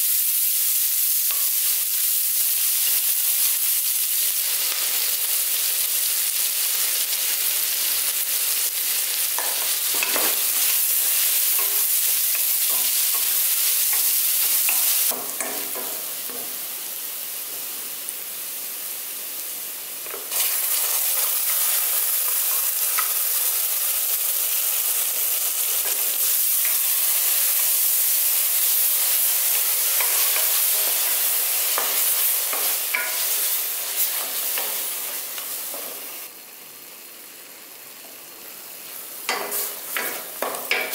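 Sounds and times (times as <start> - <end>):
onions sizzling in oil: 0.0 - 40.9
spatula stirring and scraping pan: 25.7 - 36.1, 39.3 - 40.9.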